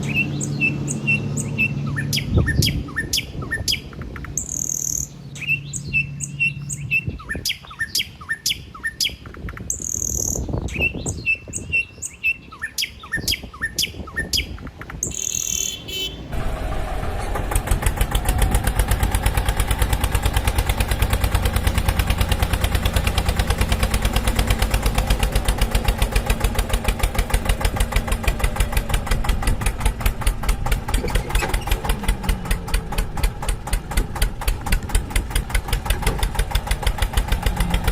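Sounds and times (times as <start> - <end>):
birds chirping: 0.0 - 16.4
tractor engine running: 14.7 - 37.9.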